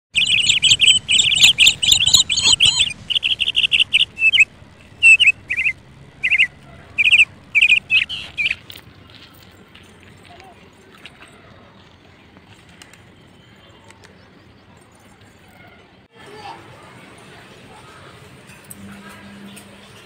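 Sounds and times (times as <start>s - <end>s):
small bird chirping: 0.1s - 8.8s.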